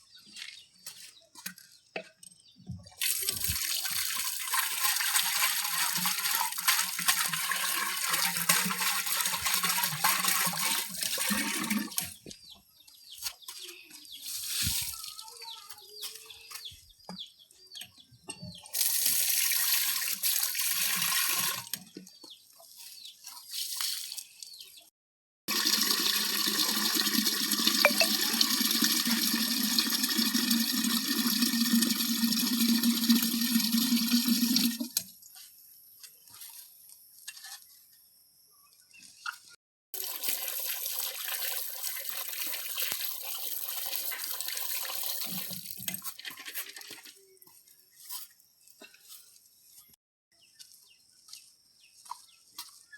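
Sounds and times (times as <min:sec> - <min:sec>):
water pouring and splashing: 0:03.0 - 0:12.4, 0:14.2 - 0:15.3, 0:18.7 - 0:21.8, 0:25.5 - 0:35.1, 0:40.0 - 0:48.2.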